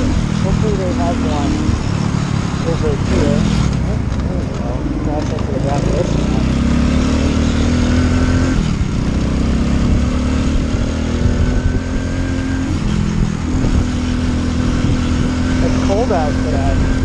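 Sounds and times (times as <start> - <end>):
small motorcycle engine running: 0.0 - 17.0.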